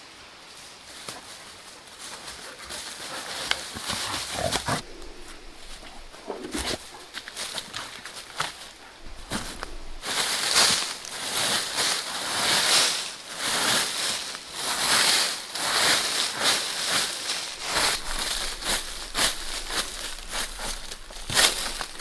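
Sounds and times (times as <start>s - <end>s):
dry leaves rustling and crunching: 0.4s - 22.0s.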